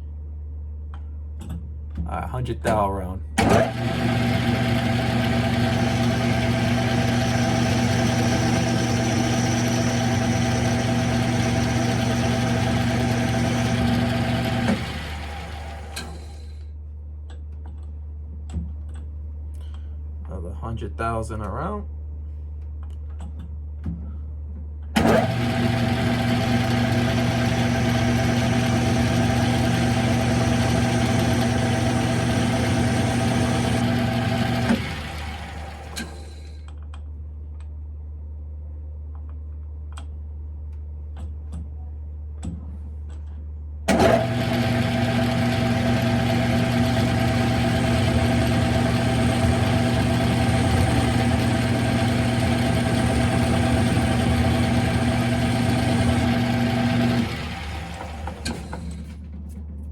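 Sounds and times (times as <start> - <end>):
lathe running: 3.4 - 16.6, 25.0 - 36.5, 43.9 - 59.2.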